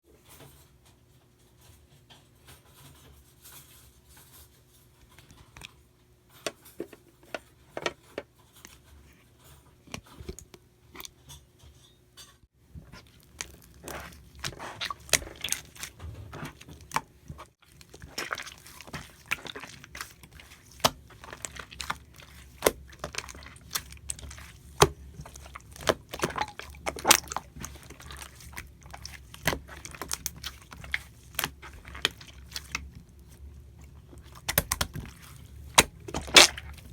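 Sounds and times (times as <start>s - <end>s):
hands squishing slime: 12.8s - 36.9s.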